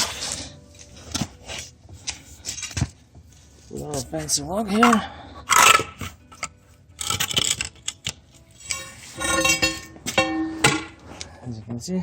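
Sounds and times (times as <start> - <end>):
metal knocks and clinks: 8.7 - 11.0.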